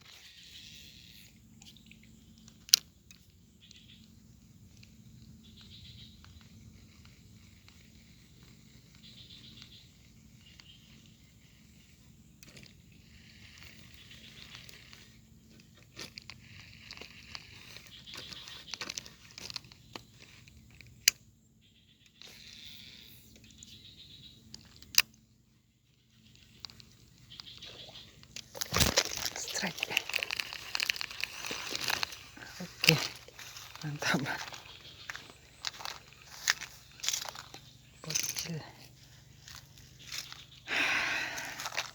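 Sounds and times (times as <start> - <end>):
fishing reel ticking: 12.4 - 19.8, 28.3 - 33.8
scraping and clicking handling: 28.2 - 33.8.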